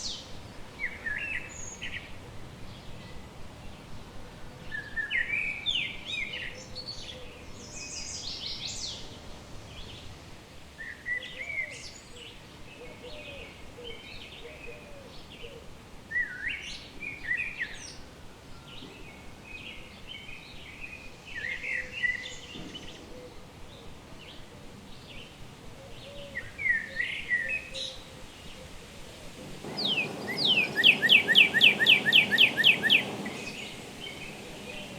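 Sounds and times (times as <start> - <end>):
outdoor background hiss: 0.0 - 34.9
songbird singing: 23.8 - 34.9
faint bird calls: 28.6 - 34.9.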